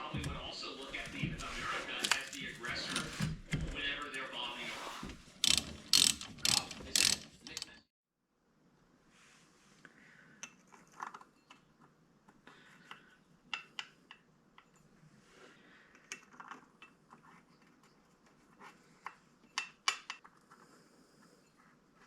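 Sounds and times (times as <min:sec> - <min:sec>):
metal tools clinking: 0:00.2 - 0:03.3, 0:05.4 - 0:07.8
sharp clicks: 0:05.4 - 0:07.8.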